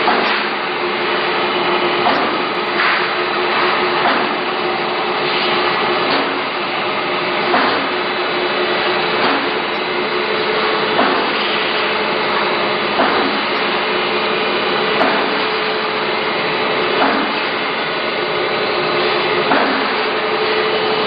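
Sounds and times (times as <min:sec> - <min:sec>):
knocks and clanks: 0:00.0 - 0:00.6, 0:02.0 - 0:04.5, 0:05.3 - 0:06.5, 0:07.4 - 0:08.1, 0:09.1 - 0:09.9, 0:11.0 - 0:13.8, 0:15.0 - 0:15.6, 0:16.9 - 0:17.6, 0:19.4 - 0:20.1
factory machinery hum: 0:00.0 - 0:21.0.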